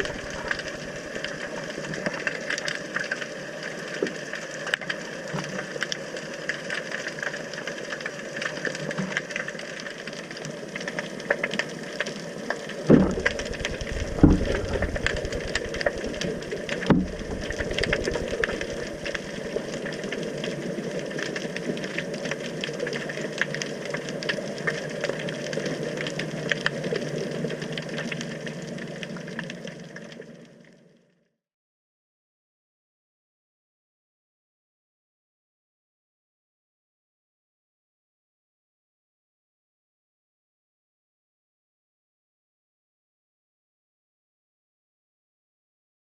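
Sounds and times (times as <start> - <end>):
fine crackling underwater: 0.0 - 31.2
underwater water noise: 0.0 - 31.3
low thumps: 12.9 - 15.9.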